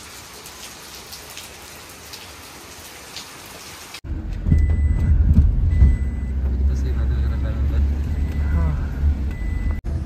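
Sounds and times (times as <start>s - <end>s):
heavy rain on paving: 0.0s - 4.0s
low rumble inside car: 4.1s - 10.0s.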